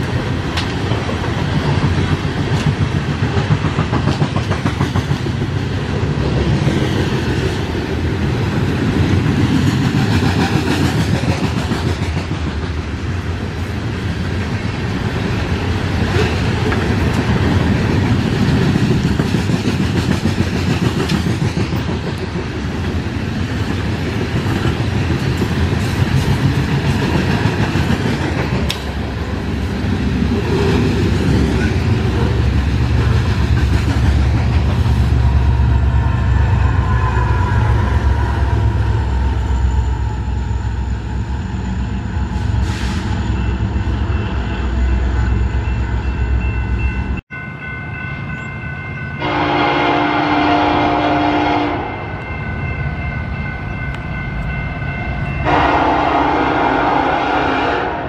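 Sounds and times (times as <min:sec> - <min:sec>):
wheels clacking over rail joints: 0:00.0 - 0:05.9
steel wheels rumbling on rail: 0:00.0 - 0:58.0.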